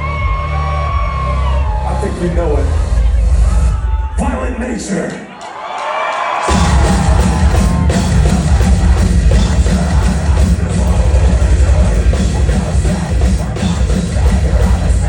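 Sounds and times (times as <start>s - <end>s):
pounding drums: 6.4s - 15.0s
distorted guitars: 6.5s - 15.0s
metal band playing live: 6.5s - 15.0s.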